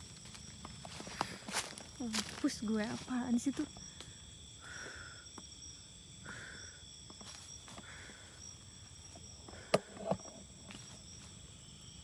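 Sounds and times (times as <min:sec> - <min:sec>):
rustling footsteps on ground: 0:00.0 - 0:03.9
night insects trilling: 0:00.0 - 0:12.0.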